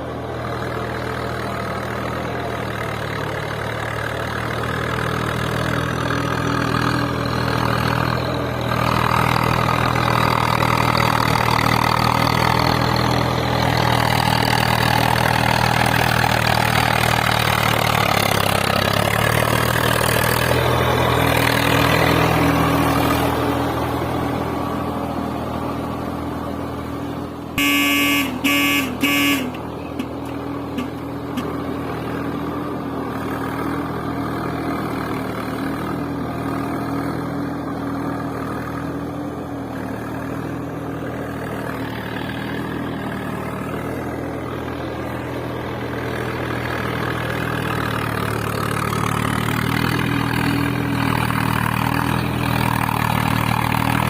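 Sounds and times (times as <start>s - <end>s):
vehicle engine running: 0.0s - 54.0s
horn honking: 27.6s - 31.5s.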